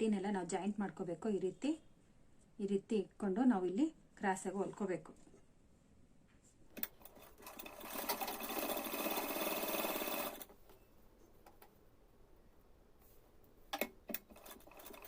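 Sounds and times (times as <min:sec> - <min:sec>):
sewing machine stitching: 0:06.8 - 0:10.5, 0:13.8 - 0:15.0.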